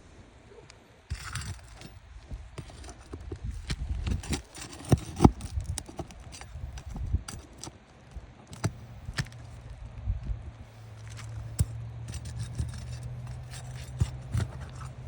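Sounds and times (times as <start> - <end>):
hand tools on roof shingles: 2.6 - 7.8, 10.9 - 15.0.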